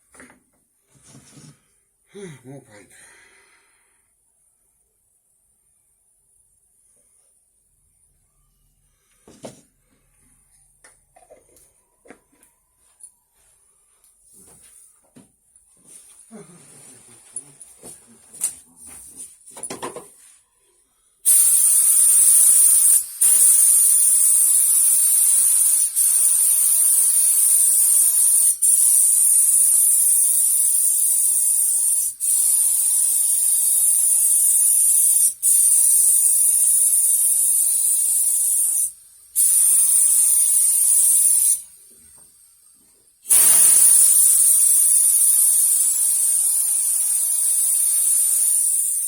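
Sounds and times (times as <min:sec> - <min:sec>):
paint spray hiss: 0:21.2 - 0:42.3, 0:43.2 - 0:49.0.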